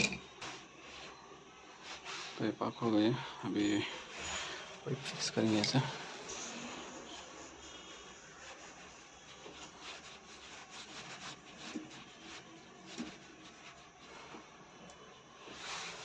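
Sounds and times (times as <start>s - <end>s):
hose handling rubbing: 8.5s - 14.3s.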